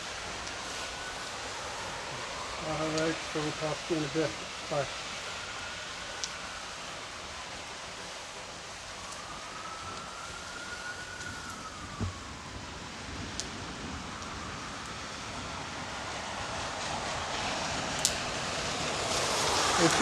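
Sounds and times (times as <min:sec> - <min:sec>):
faint siren wailing: 0:00.0 - 0:20.0
steady rain falling: 0:00.0 - 0:20.0
dull thump: 0:12.0 - 0:12.2.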